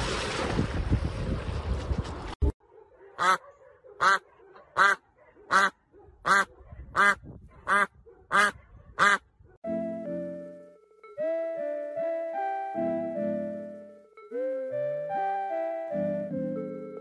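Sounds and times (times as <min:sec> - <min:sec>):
duck quacking: 0:03.2 - 0:03.4, 0:04.0 - 0:04.2, 0:04.8 - 0:09.2.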